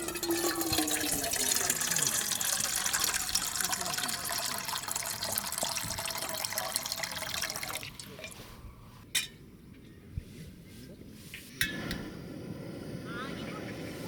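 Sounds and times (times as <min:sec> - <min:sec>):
liquid pouring: 0:00.0 - 0:08.6.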